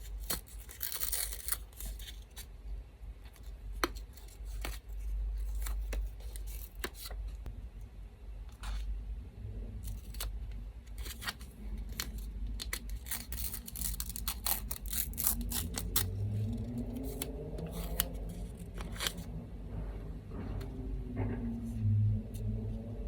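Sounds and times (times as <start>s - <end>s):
scissors snipping paper: 0.0s - 2.4s, 11.0s - 19.2s.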